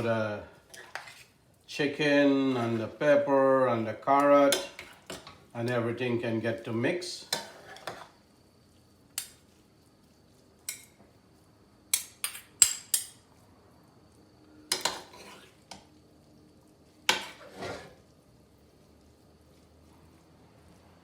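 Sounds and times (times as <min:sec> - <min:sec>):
spoons tossing noodles: 0:00.6 - 0:01.6, 0:02.2 - 0:05.9.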